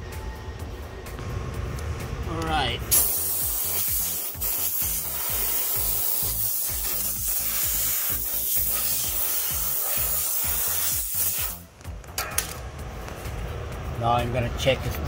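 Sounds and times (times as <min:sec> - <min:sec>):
background music with beat: 0:00.0 - 0:14.2
hydraulic pump hissing: 0:02.9 - 0:11.6.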